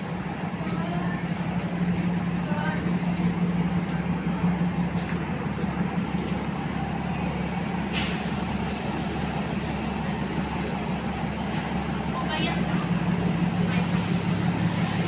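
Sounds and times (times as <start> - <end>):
diesel railcar engine humming: 0.0 - 15.0
short hiss: 7.9 - 8.5.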